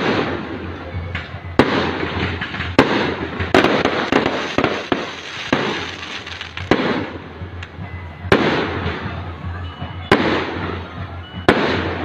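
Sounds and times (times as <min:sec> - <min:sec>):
fireworks crackling: 0:02.6 - 0:07.8
fireworks bangs: 0:02.7 - 0:08.8.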